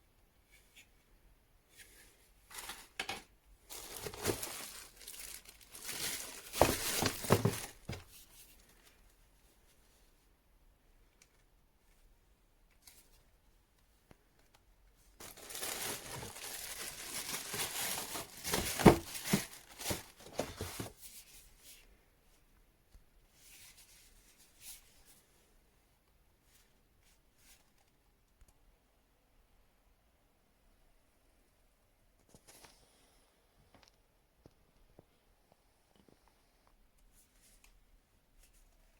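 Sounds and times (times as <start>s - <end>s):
packaging crinkling and tearing: 3.7s - 8.0s, 15.2s - 20.9s.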